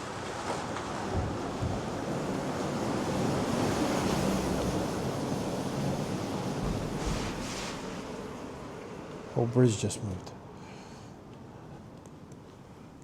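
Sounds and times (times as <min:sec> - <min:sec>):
car rumbling over wooden bridge: 0:00.8 - 0:08.6.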